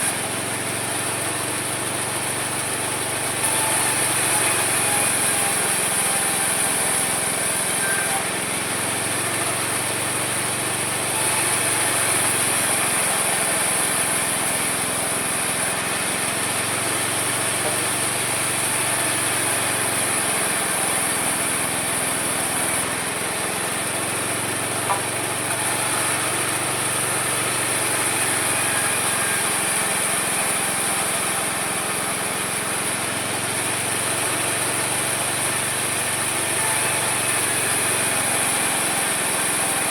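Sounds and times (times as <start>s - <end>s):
sawmill sawing through wood: 0.0s - 39.9s.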